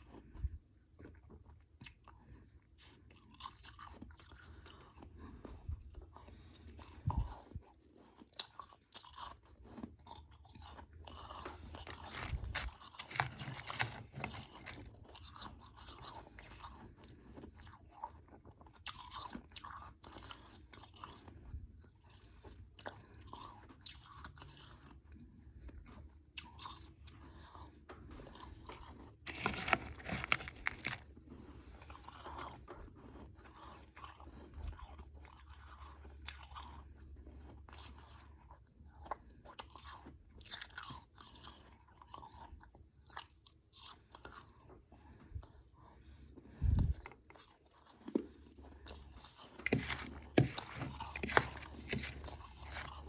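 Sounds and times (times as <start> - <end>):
person crunching ice: 11.7 - 14.9, 29.3 - 31.1, 49.6 - 53.0.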